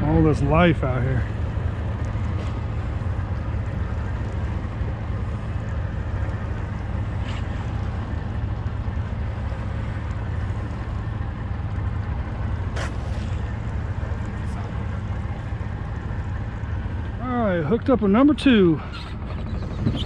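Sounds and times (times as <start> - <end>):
motorboat engine drone: 0.0 - 20.0
rushing water: 0.0 - 20.0
wind on microphone: 19.2 - 20.0.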